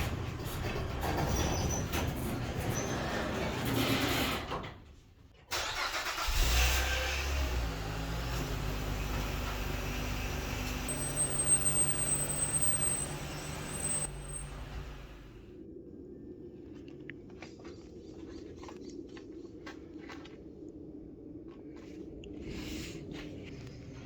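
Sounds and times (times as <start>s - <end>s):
car engine starting and idling: 5.5s - 15.4s
thin high whine: 10.6s - 15.4s.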